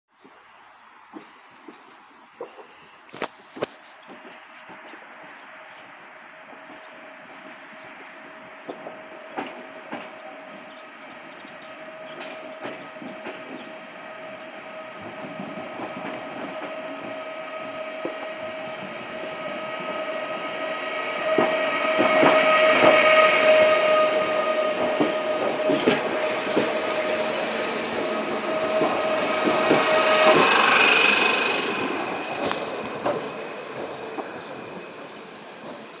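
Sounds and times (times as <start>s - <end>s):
train passing close by: 0.1s - 36.0s
wheels clicking over rail joints: 6.4s - 19.5s, 24.8s - 36.0s.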